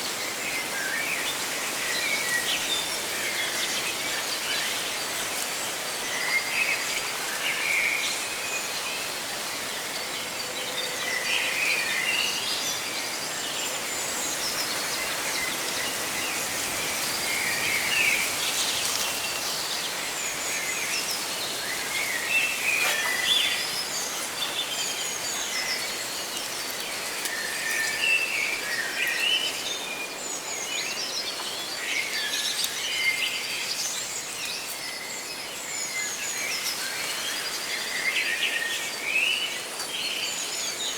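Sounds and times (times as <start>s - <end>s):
leaves rustling: 11.8s - 40.8s.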